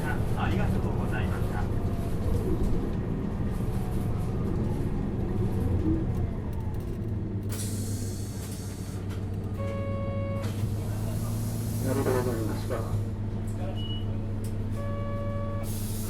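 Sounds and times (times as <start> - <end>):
bus diesel engine idling: 0.0 - 16.0
compressed air hiss: 10.9 - 12.6.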